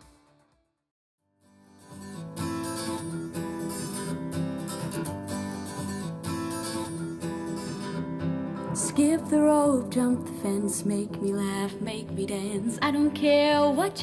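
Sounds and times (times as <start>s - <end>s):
acoustic guitar strumming: 1.4s - 14.0s.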